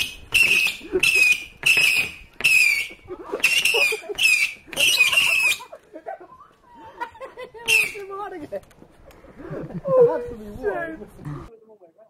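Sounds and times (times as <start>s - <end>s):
firework whistles with hiss: 0.0s - 5.6s.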